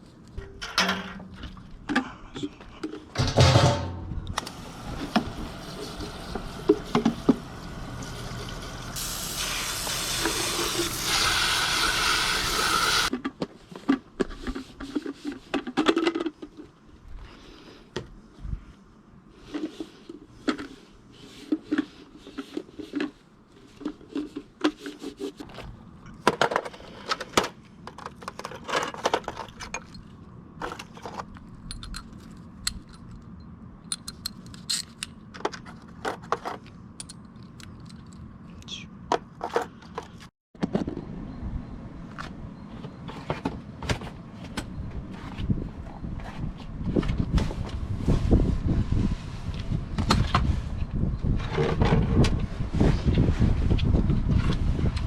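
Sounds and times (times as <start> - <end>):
oil pouring in a stream: 5.7 - 13.1.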